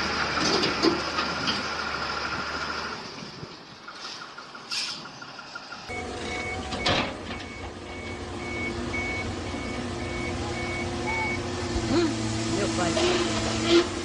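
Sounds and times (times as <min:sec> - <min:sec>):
diesel engine running: 0:00.0 - 0:14.0
reversing alarm beeping: 0:05.0 - 0:11.5.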